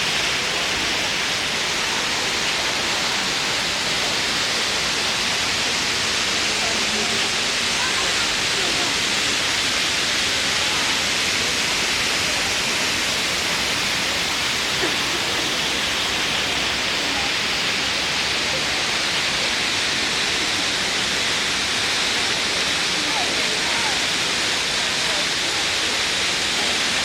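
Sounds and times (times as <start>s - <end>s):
fountain water splashing: 0.0s - 27.0s.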